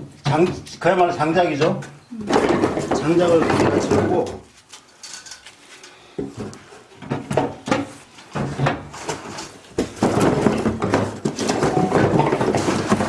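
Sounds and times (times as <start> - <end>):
firewood logs clunking: 2.2 - 4.4, 6.2 - 13.0.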